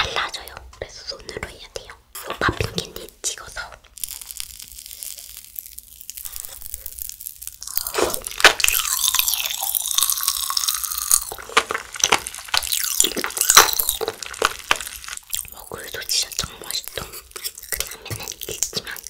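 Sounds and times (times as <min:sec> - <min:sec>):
chewing crunchy candy: 0:03.9 - 0:19.0.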